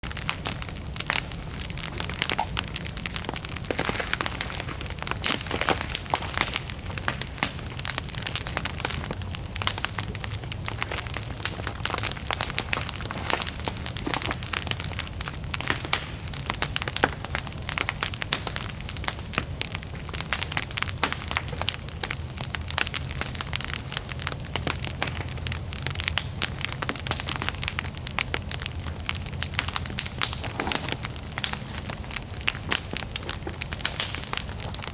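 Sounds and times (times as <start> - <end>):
bonfire crackling and popping: 0.0 - 34.9
low rumble of flame: 0.0 - 34.9.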